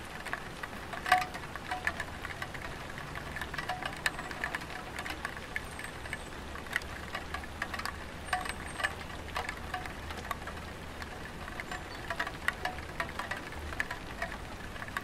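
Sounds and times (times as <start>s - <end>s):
raindrops ticking on roof tiles: 0.0s - 15.0s
steady rain hiss: 0.0s - 15.0s.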